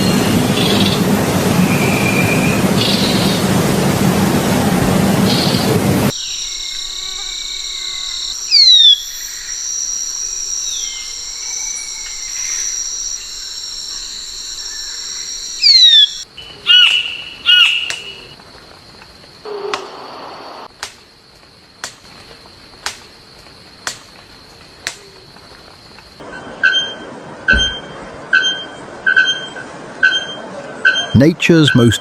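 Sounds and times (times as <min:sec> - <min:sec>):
insect drone: 0:00.0 - 0:26.2
loud ringing bird calls: 0:10.6 - 0:18.3, 0:26.2 - 0:32.0.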